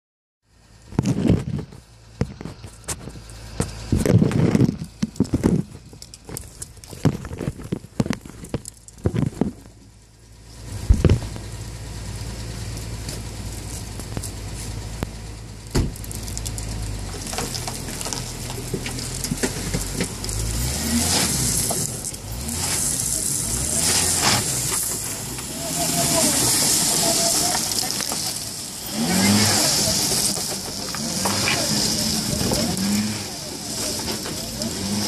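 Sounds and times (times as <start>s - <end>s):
car engine starting and idling: 0.5s - 35.0s
hiss: 22.6s - 35.0s.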